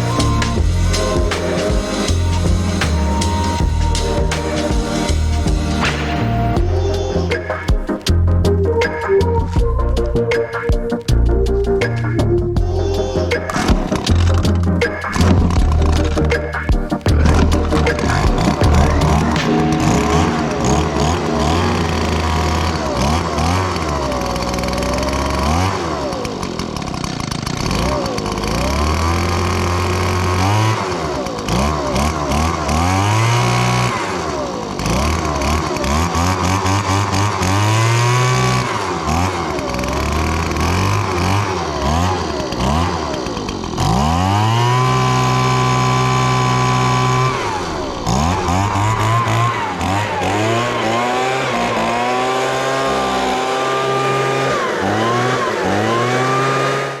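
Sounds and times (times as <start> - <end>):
leaf blower engine revving: 17.2 - 57.0.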